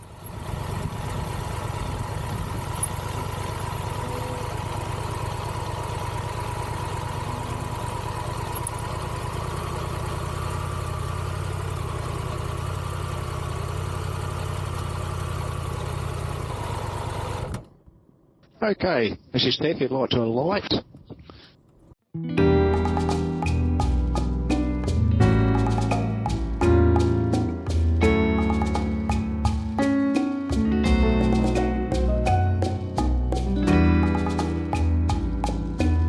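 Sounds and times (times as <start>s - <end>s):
motorcycle engine idling: 0.0s - 17.7s.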